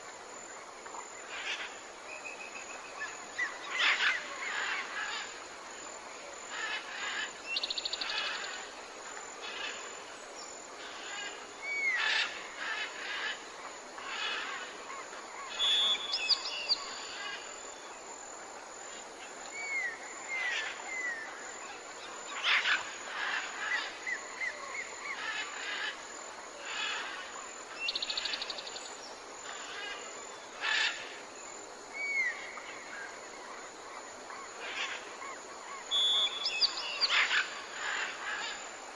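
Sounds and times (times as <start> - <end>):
steady background hiss: 0.0 - 38.9
birds chirping and trilling: 35.8 - 38.6.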